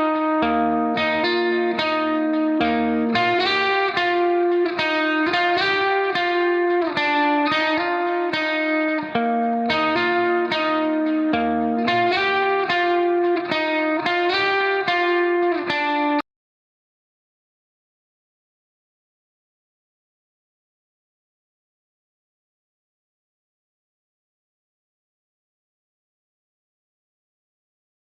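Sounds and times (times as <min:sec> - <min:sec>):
plucked guitar melody: 0:00.0 - 0:16.2.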